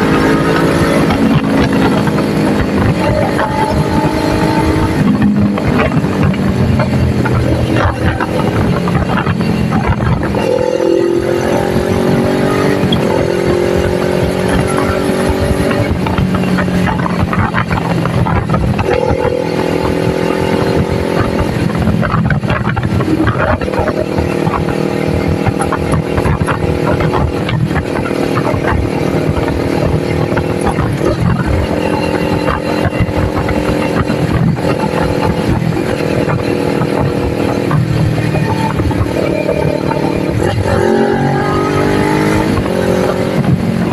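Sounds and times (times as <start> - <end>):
motorcycle engine at speed: 0.0 - 43.9
rushing wind noise: 0.0 - 43.9.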